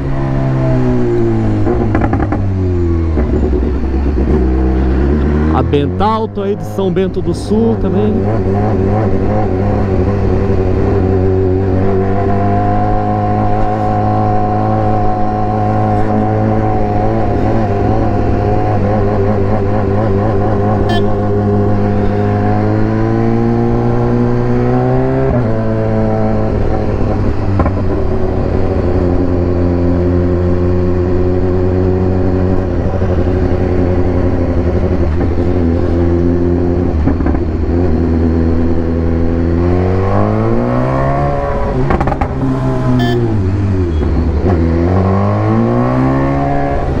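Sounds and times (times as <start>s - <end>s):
motorcycle engine running: 1.6s - 11.8s, 13.0s - 24.5s, 41.3s - 44.8s.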